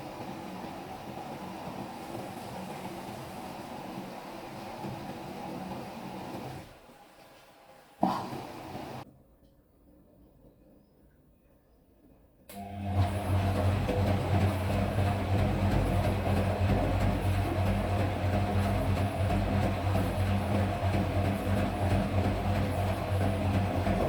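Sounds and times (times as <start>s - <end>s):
washing machine spin rumble: 0.0s - 9.0s, 12.5s - 24.0s
washing machine knocking: 12.7s - 24.0s.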